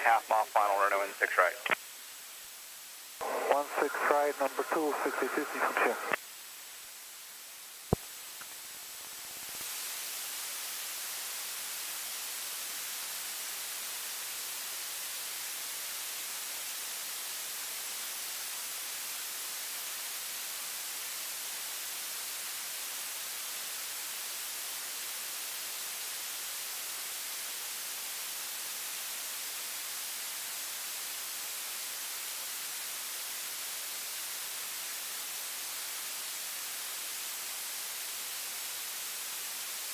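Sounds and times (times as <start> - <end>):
radio static hiss: 0.0 - 30.6.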